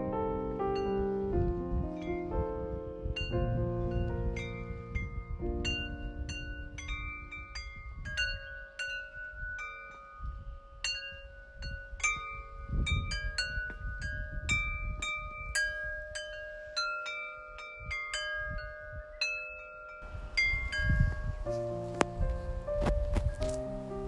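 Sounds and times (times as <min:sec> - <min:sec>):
gusty low rumble: 0:00.0 - 0:08.5, 0:11.6 - 0:15.6, 0:20.0 - 0:24.0.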